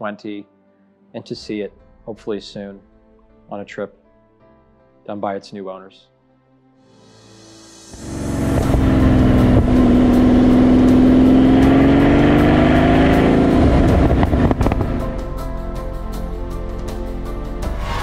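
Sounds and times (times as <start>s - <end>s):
sports car engine running: 8.0s - 15.2s.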